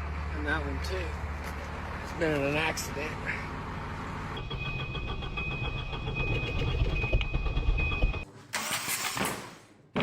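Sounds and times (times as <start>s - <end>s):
vehicle low rumble: 0.0s - 8.2s
pulsing high-pitched whine: 4.4s - 8.2s.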